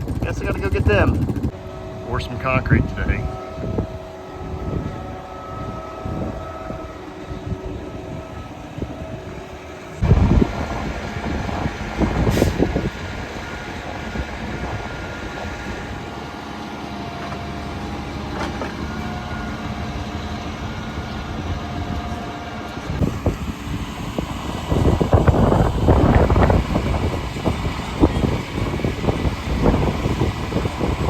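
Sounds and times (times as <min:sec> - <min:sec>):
diesel truck running: 0:00.0 - 0:31.0.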